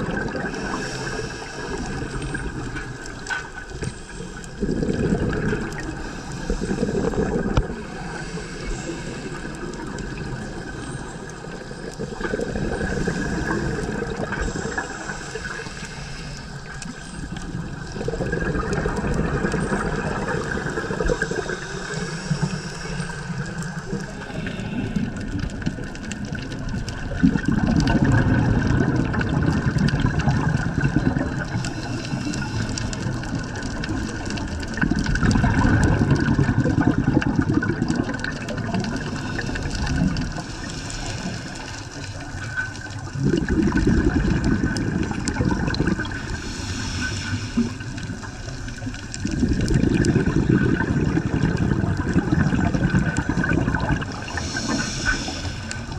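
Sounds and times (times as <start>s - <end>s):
regulator exhaust bubbles: 0.0s - 15.6s, 16.6s - 55.9s
steady underwater hiss: 0.0s - 55.9s.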